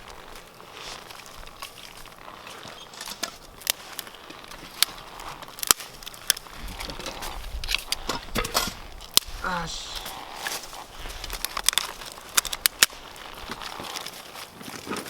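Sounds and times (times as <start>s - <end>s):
campfire crackling: 0.0s - 15.0s
sharp fire pops: 7.8s - 13.8s.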